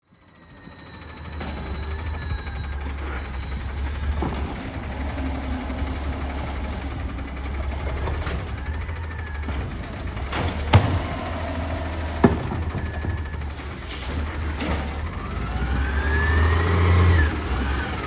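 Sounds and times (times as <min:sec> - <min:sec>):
diesel truck engine rumbling: 0:00.0 - 0:18.0
sharp bangs: 0:08.2 - 0:15.6.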